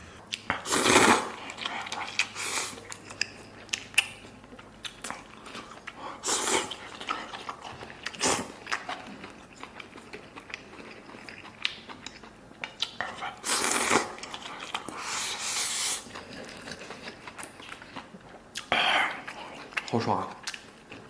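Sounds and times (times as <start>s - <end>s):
chewing and biting food: 0.1s - 21.0s.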